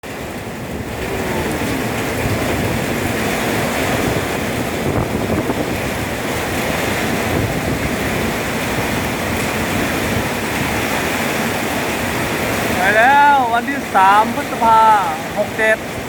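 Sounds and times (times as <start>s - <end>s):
strong storm wind gusts: 0.0s - 16.0s
wind buffeting microphone: 0.0s - 16.0s.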